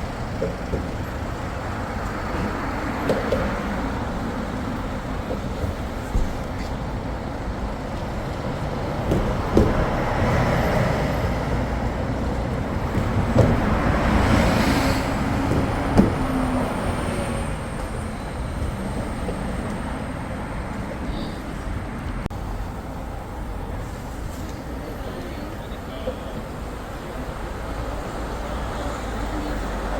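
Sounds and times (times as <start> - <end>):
traffic passing: 0.0 - 29.9
sharp knocks: 13.0 - 16.6.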